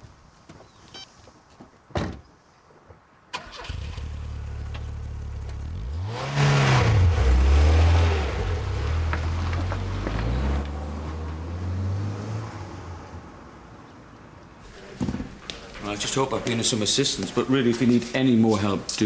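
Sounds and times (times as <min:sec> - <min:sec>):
thump: 0:01.9 - 0:02.3
car engine starting and running: 0:03.3 - 0:13.7.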